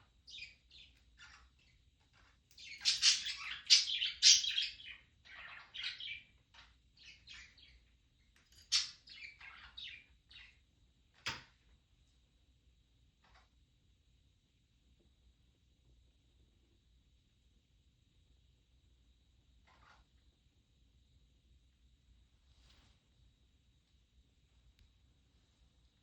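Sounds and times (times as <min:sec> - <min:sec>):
budgerigars chirping and chattering: 0:00.3 - 0:07.8, 0:08.5 - 0:10.6.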